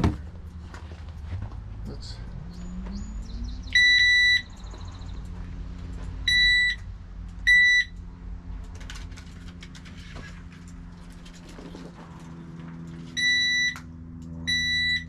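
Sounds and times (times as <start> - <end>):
metal detector beeping: 3.7 - 4.5, 6.3 - 6.8, 7.5 - 7.9, 13.2 - 13.8, 14.5 - 15.0.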